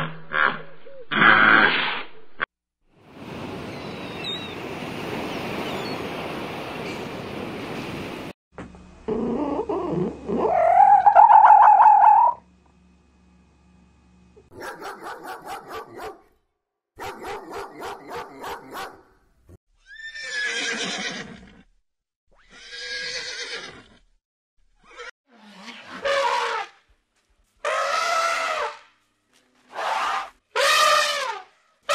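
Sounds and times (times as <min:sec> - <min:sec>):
long wavering animal call: 0:09.1 - 0:12.4
horse whinnying: 0:19.8 - 0:21.6, 0:22.4 - 0:24.0.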